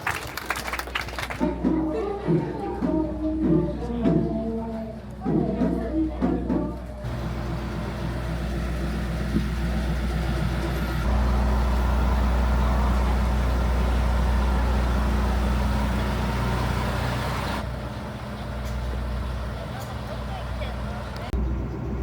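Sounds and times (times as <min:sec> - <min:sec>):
vehicle engine hum: 0:07.0 - 0:22.0.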